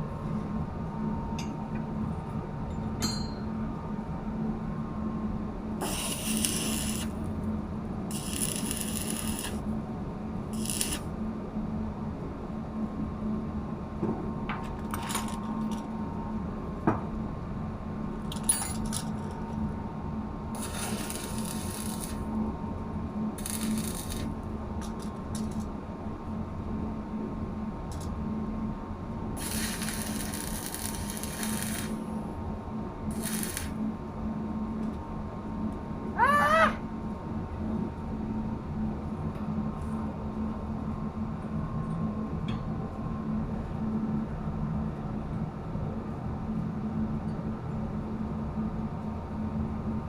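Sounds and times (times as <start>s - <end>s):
low machinery hum: 0.0s - 50.0s.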